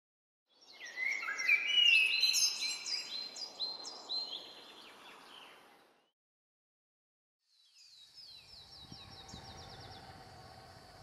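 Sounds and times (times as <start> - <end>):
birds chirping: 7.6 - 11.0.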